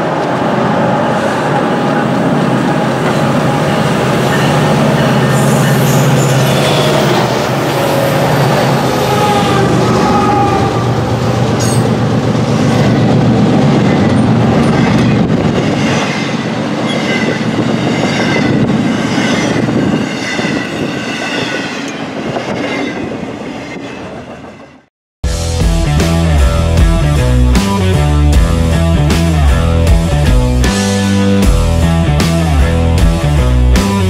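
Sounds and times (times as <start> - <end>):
freight train wheels clattering: 2.0 - 24.6
train wheel squeal: 3.0 - 10.7, 11.5 - 13.0, 13.7 - 24.9.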